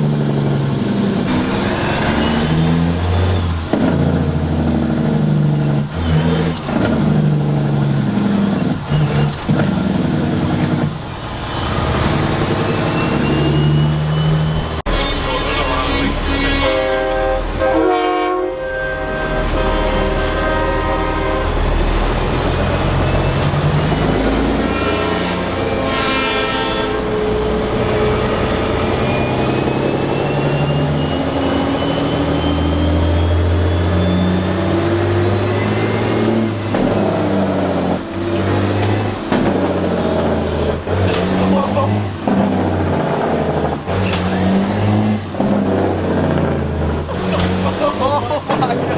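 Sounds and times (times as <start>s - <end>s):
diesel truck engines rumbling: 0.0s - 48.9s
truck air horn blasts: 14.9s - 22.1s, 24.1s - 27.5s.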